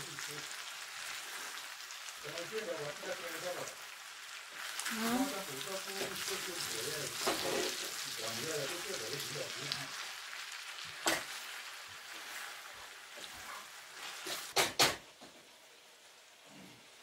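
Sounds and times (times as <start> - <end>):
food sizzling in a frying pan: 0.0 - 17.0
wooden spoon stirring: 10.9 - 14.5.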